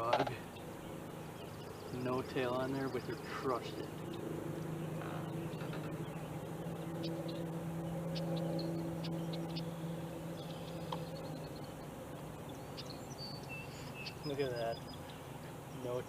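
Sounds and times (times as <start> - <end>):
low motor hum: 0.0 - 16.0
faint high ticks and chirps: 10.4 - 15.2.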